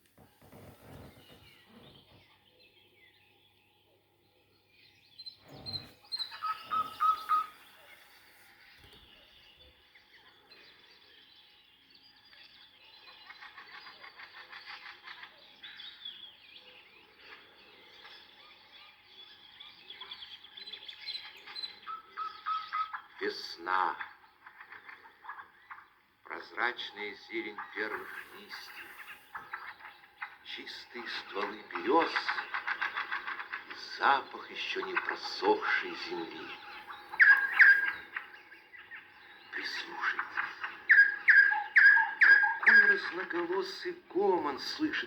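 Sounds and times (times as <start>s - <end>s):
forest birds singing: 0.0s - 45.0s
bird repeating clear notes: 6.2s - 7.7s, 35.8s - 38.2s.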